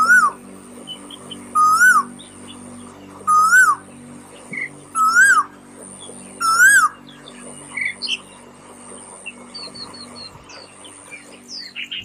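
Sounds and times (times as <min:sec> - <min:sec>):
bird whistled call: 0:00.0 - 0:02.3, 0:03.3 - 0:03.8, 0:04.6 - 0:05.6, 0:06.4 - 0:08.2
high bird chirps: 0:00.0 - 0:08.4.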